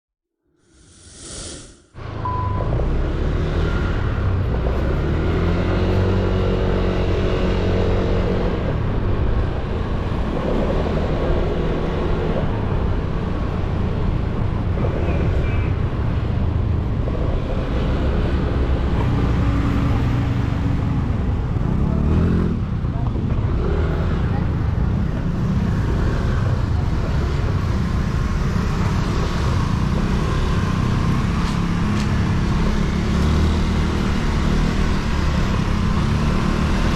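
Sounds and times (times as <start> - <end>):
whoosh: 0.6 - 2.9
wind and road noise: 0.6 - 36.9.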